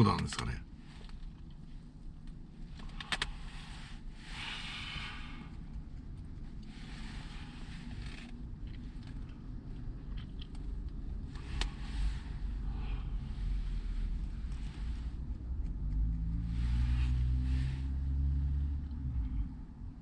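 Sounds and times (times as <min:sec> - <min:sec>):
low rumble inside car cabin: 0:00.0 - 0:20.0
rustling or scraping: 0:06.2 - 0:09.4.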